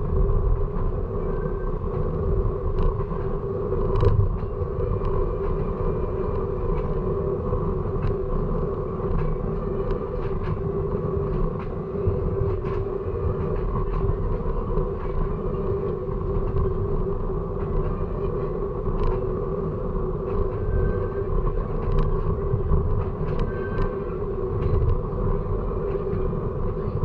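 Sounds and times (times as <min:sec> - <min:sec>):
creaks and clanks from train wheels: 0:00.0 - 0:27.0
train rumbling on rails: 0:00.0 - 0:27.0.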